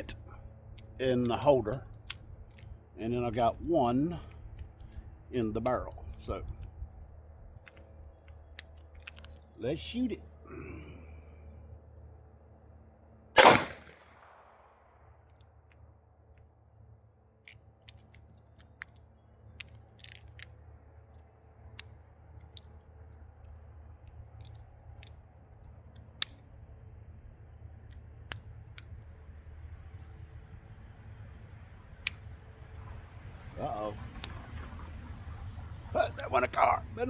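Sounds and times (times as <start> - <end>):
gun handling clicks: 0.0 - 3.6, 4.2 - 6.8, 7.5 - 9.5, 13.4 - 14.2, 17.4 - 26.5, 27.8 - 29.2, 34.2 - 34.4
pistol shot: 13.4 - 14.6.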